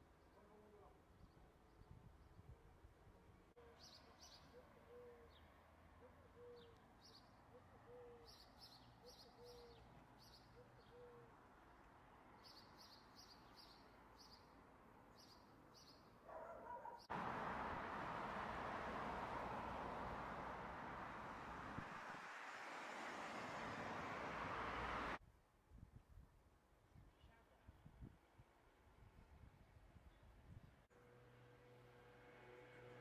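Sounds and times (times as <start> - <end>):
street ambience: 2.5 - 25.2.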